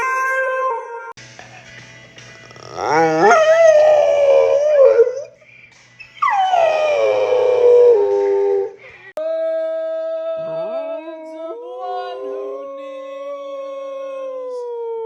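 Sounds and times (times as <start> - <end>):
dog howling: 2.6 - 5.3, 6.2 - 8.8.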